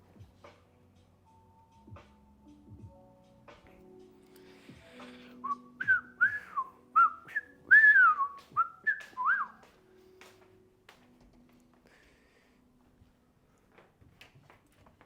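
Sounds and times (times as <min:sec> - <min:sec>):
faint background music: 0:00.0 - 0:15.0
person whistling a tune: 0:05.4 - 0:09.6.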